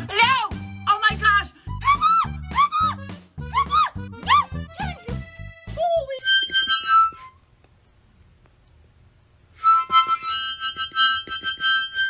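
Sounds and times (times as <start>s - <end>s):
harmonica-like music: 0.0s - 7.4s, 9.6s - 12.0s.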